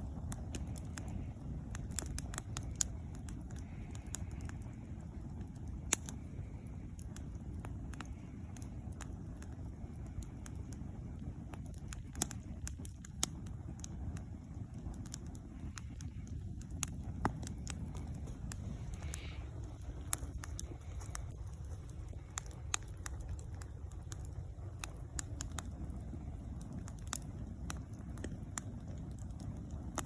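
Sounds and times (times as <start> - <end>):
campfire crackling and popping: 0.0 - 30.0
steady low rumble: 0.0 - 30.0.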